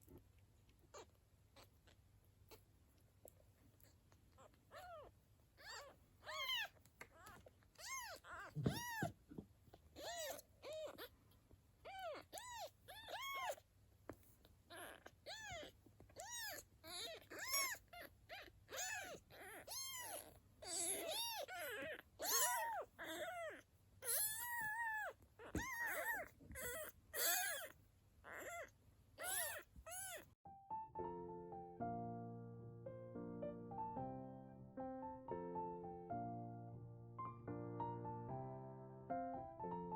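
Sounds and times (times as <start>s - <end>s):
kitten mewing: 3.8s - 11.2s, 11.8s - 13.6s, 14.7s - 30.4s.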